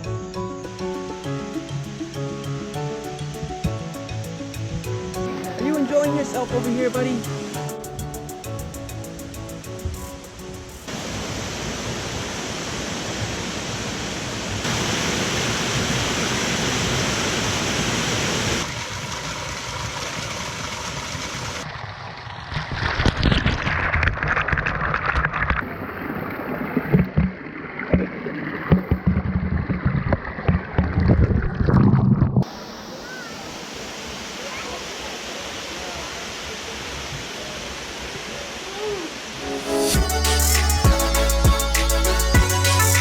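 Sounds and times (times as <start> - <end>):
mountain stream rushing: 0.0 - 22.8, 32.4 - 43.0.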